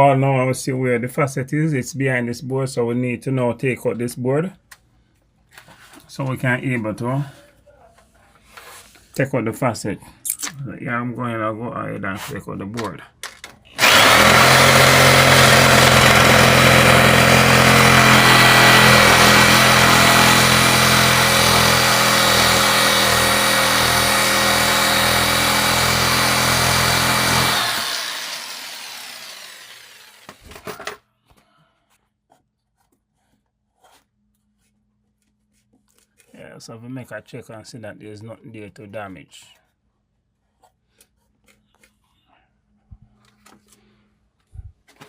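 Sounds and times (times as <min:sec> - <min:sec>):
power tool cutting board: 0:13.8 - 0:30.7.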